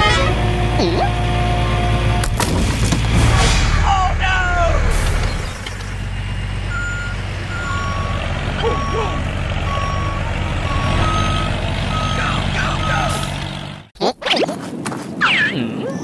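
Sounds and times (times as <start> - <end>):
truck engine running: 0.0 - 13.9
reversing alarm beeping: 6.7 - 13.2.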